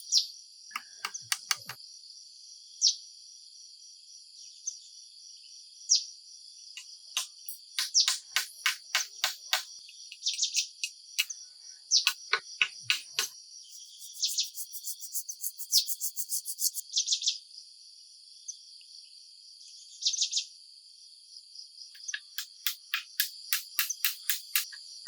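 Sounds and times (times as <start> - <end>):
high-pitched insect chorus: 6.8 - 17.0
sharp quick chirping: 7.2 - 11.3, 12.0 - 16.8.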